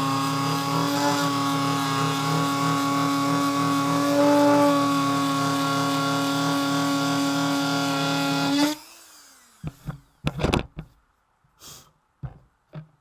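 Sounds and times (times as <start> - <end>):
rotary tool whining: 0.0 - 10.2.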